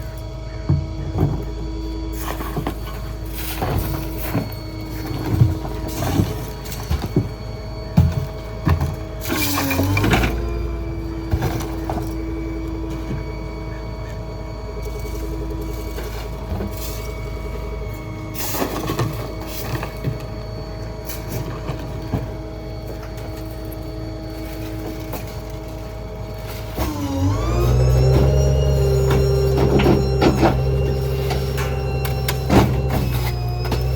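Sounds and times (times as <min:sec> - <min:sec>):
garbage truck engine whining: 0:00.0 - 0:33.9
knocks and clanks: 0:26.8 - 0:33.9.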